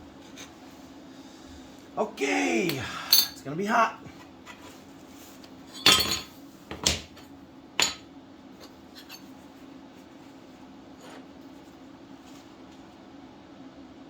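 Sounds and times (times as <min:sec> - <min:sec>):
steel pieces clanking on metal: 0:03.1 - 0:03.4, 0:05.7 - 0:06.3.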